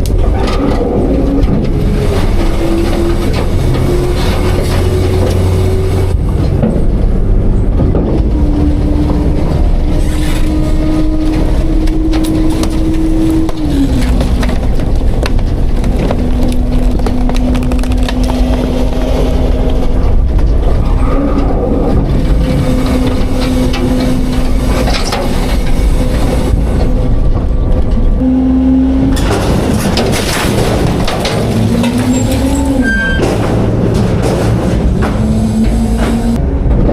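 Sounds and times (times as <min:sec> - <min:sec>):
garbage truck engine revving: 0:00.0 - 0:36.9
garbage cracking and crunching: 0:07.8 - 0:27.8, 0:29.1 - 0:35.3.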